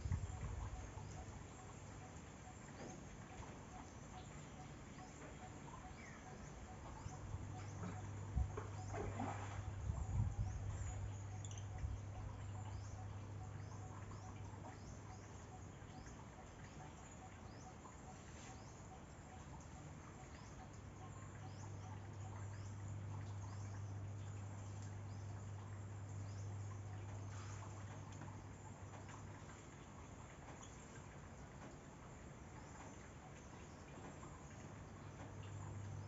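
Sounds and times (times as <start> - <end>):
steady low hum: 0.0 - 36.0
small birds chirping: 10.0 - 28.2.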